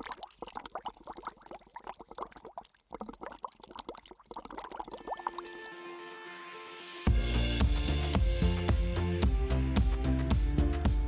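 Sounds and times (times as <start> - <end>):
water pouring and trickling: 0.0 - 5.7.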